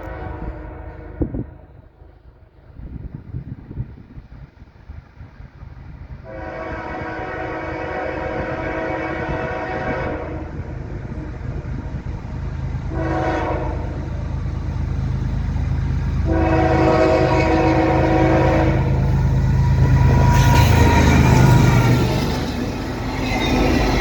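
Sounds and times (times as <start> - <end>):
locomotive air horn blasts: 0.0 - 1.7, 6.2 - 10.7, 12.9 - 14.0, 16.2 - 19.1
locomotive engine drone: 0.0 - 24.0.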